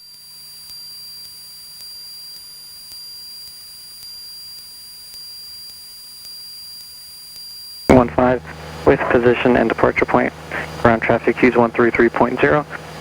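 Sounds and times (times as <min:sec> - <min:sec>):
high electronic whine: 0:00.3 - 0:13.0
faint regular ticking: 0:07.9 - 0:13.0
low hum: 0:07.9 - 0:13.0.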